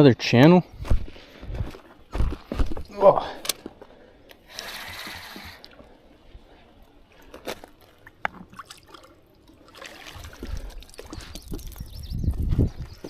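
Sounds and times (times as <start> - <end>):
water sloshing and splashing: 4.6 - 12.6.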